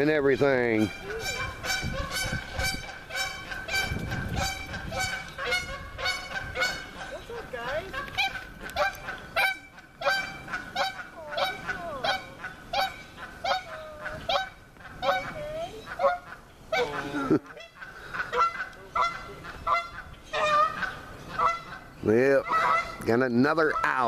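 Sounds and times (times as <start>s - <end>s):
geese honking: 0.0s - 24.0s.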